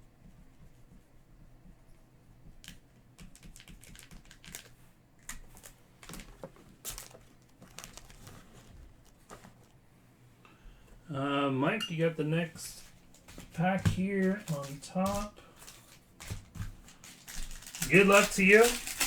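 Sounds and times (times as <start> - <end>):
cards clicking: 2.6 - 8.5, 12.7 - 19.0
foil wrappers crinkling: 3.2 - 9.8, 12.5 - 19.0.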